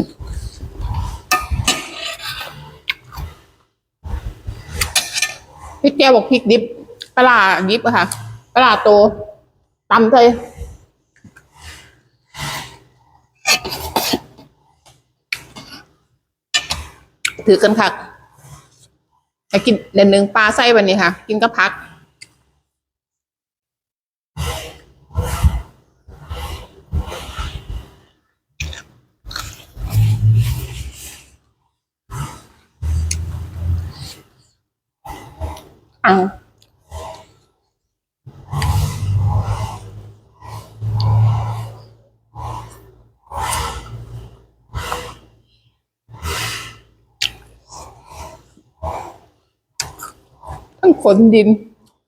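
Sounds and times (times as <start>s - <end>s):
breaths: 10.5s - 15.1s, 24.4s - 29.0s, 38.4s - 50.8s
close-miked wet chewing: 47.2s - 50.8s.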